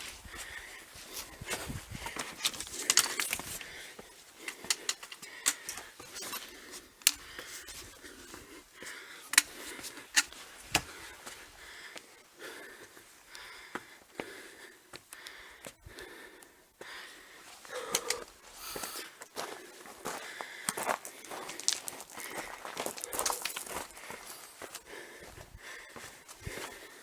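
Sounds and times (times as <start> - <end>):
footsteps on stony ground: 0.0 - 12.1, 17.5 - 27.0
heavy breathing: 0.0 - 27.0.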